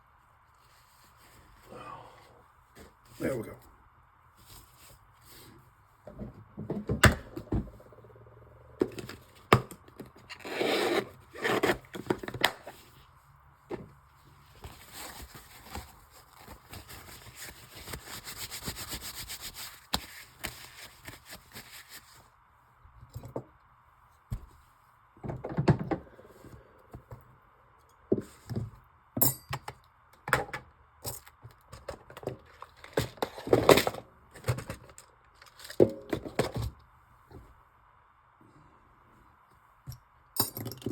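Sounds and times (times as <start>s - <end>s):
metal tools tapping and scraping: 29.2s - 29.8s.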